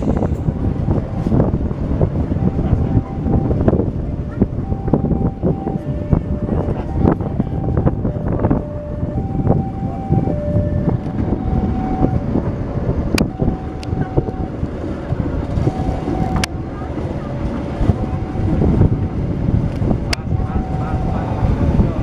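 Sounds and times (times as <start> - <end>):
train carriage rumbling: 0.0 - 22.0
two-tone warning signal: 0.1 - 12.5, 13.1 - 19.2, 20.0 - 22.0.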